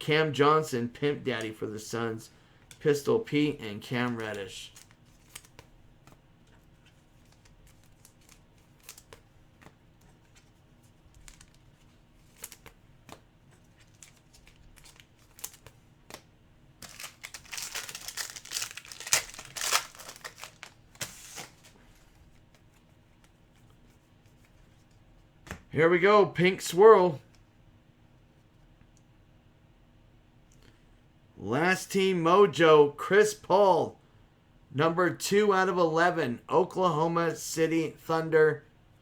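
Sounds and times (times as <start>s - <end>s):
cards being handled: 3.9s - 25.7s
wrapper tearing and crinkling: 13.8s - 16.2s, 16.8s - 21.8s.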